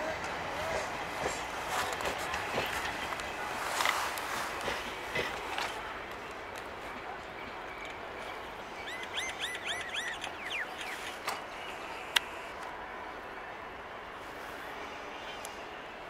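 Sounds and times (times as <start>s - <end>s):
passenger train departing: 0.0s - 16.0s
bird chirping: 8.8s - 12.1s.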